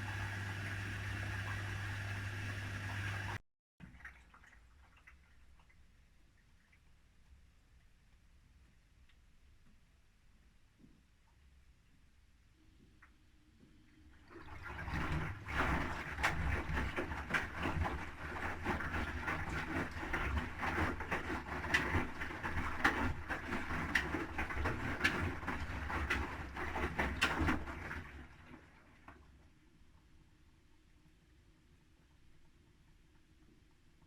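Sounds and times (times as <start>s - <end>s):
low motor hum: 0.0s - 3.4s
laundry and water sloshing: 0.0s - 5.8s, 14.1s - 29.3s.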